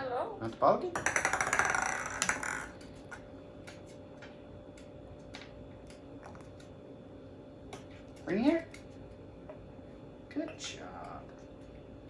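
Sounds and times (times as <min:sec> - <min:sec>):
toy ball rattling on hard surface: 0:01.0 - 0:03.2.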